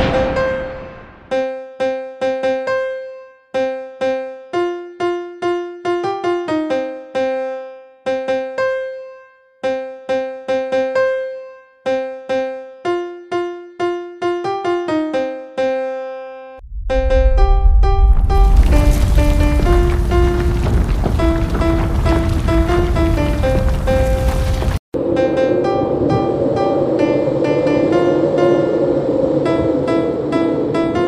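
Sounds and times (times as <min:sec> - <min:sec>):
keyboard playing simple melody: 0:01.4 - 0:16.6.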